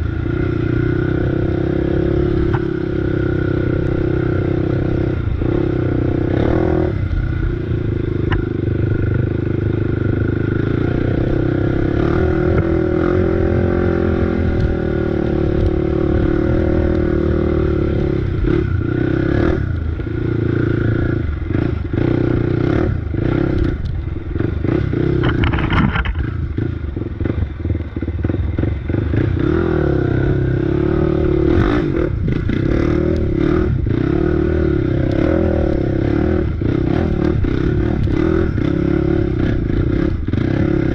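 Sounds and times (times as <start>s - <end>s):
off-road engine revving: 0.0s - 40.9s
machine rattling and scraping: 25.2s - 26.3s.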